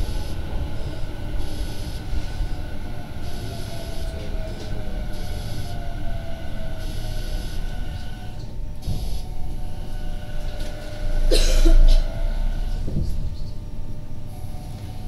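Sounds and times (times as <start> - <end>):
faint motor tones: 0.0 - 11.3
train low rumble: 0.0 - 15.0.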